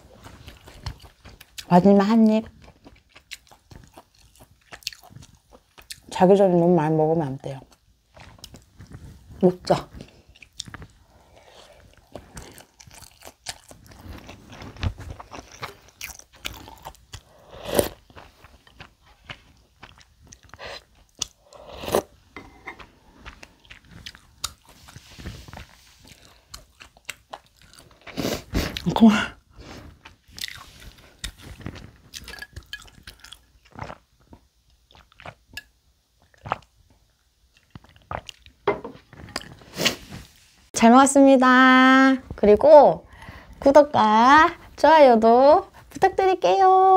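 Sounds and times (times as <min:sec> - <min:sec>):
person chewing food: 0:00.0 - 0:01.7, 0:02.4 - 0:06.1, 0:07.7 - 0:40.1
person slurping noodles: 0:16.7 - 0:18.0, 0:20.6 - 0:22.7.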